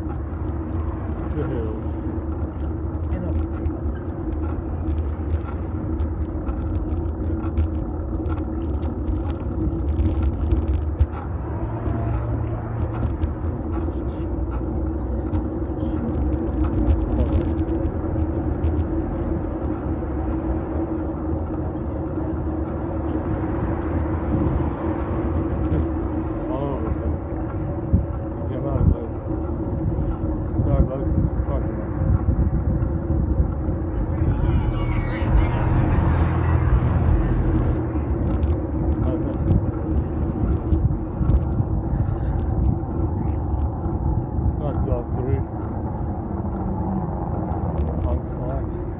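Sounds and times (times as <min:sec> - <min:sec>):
clicks and rattles from bumps: 0:00.0 - 0:11.2, 0:11.8 - 0:19.0, 0:23.8 - 0:26.0, 0:37.0 - 0:43.9, 0:47.5 - 0:48.2
bike rolling on road: 0:00.0 - 0:48.9
constant low hum: 0:00.0 - 0:48.9.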